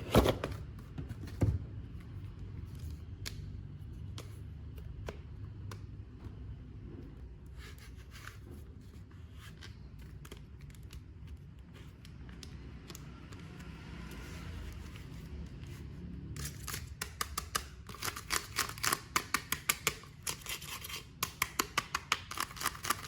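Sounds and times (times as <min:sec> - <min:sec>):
packaging rustling and scraping: 0:20.2 - 0:21.2.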